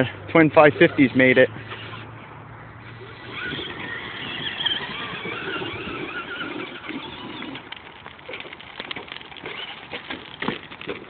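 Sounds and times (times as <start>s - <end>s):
electric toy truck motor whining: 2.8s - 7.8s, 9.4s - 10.3s
clicks and rattles: 7.6s - 11.0s.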